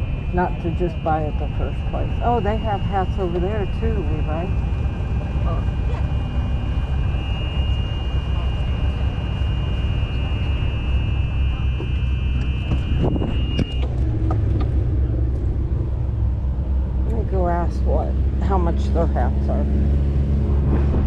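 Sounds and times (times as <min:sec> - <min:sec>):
thin high whine: 0:00.0 - 0:17.2
low engine rumble: 0:00.0 - 0:21.0.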